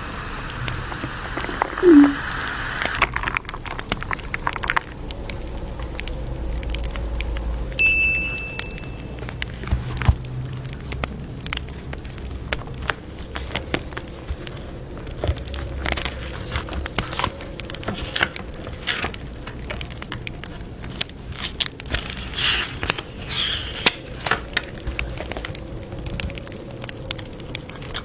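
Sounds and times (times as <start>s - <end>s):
fire hissing: 0.0s - 3.0s
wood fire crackling: 0.0s - 7.6s, 9.2s - 28.0s.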